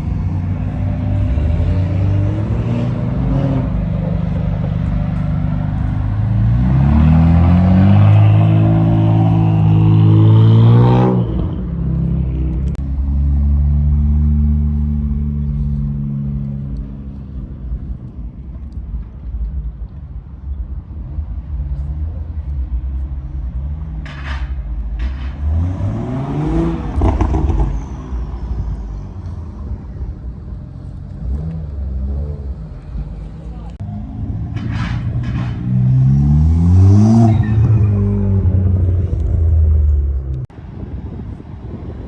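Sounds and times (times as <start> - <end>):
deep low engine rumble: 0.0 - 42.0
car engine revving: 35.2 - 40.4.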